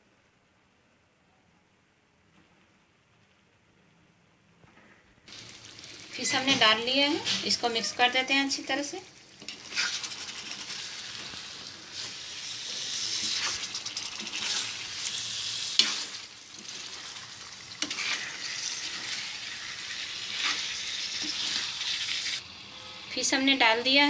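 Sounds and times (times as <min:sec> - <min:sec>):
fish sizzling in oil: 0:05.3 - 0:24.0
spatula scraping and knocking pan: 0:15.7 - 0:17.1, 0:17.7 - 0:22.0.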